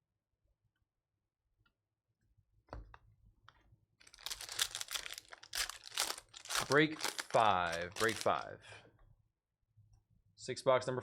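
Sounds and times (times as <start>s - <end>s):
card pack wrapper crinkling: 4.0s - 8.5s.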